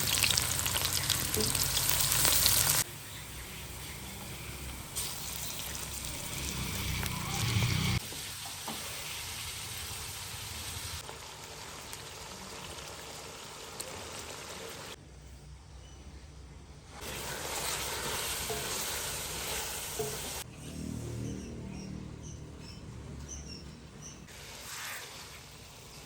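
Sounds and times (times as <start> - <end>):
food sizzling in hot oil: 0.0 - 2.9, 4.5 - 15.0, 17.0 - 20.4, 24.3 - 26.0.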